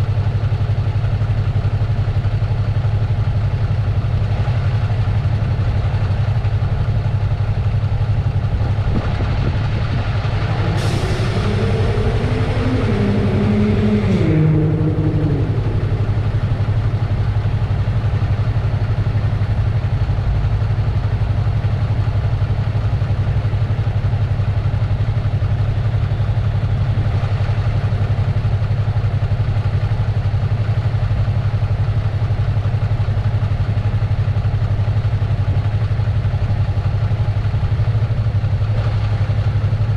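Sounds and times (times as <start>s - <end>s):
motorcycle engine running: 0.0s - 39.9s
hissing engine-like sound: 10.0s - 19.2s.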